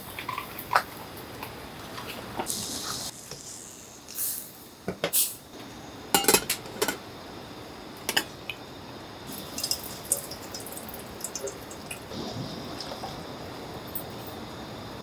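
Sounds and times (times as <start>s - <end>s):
short hissing sounds: 2.4s - 5.9s
dishes and cutlery clinking: 6.2s - 7.0s.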